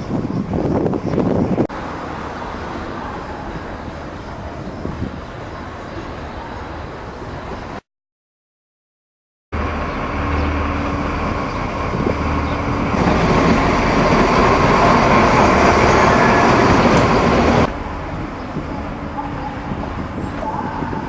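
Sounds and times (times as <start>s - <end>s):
train rumbling by: 9.6s - 21.0s.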